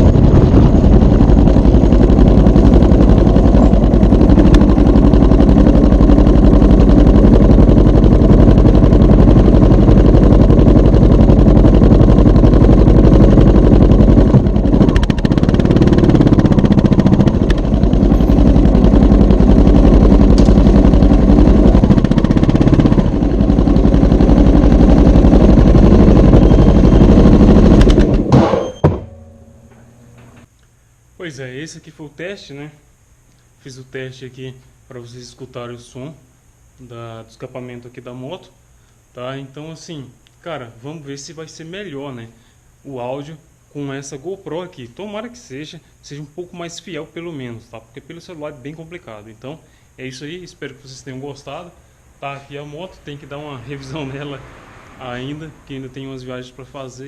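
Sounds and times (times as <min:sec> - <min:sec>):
motorcycle engine revving: 0:00.0 - 0:30.5, 0:53.0 - 0:56.3.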